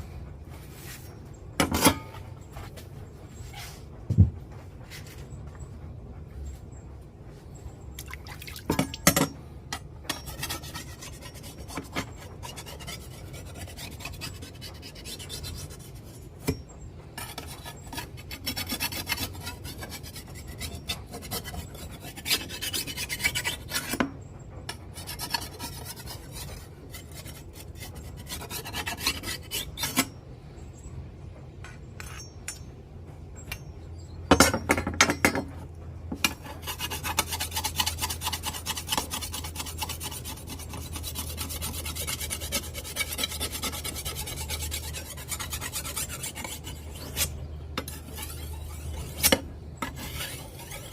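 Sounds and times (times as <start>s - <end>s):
sharpening stone scraping a blade: 10.1s - 16.6s, 17.2s - 24.0s, 32.0s - 32.6s, 36.2s - 50.9s.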